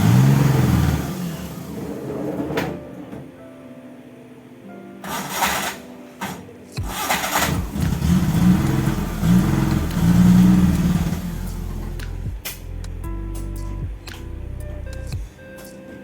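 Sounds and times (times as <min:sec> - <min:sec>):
car engine revving: 0:00.0 - 0:02.4, 0:06.9 - 0:12.3.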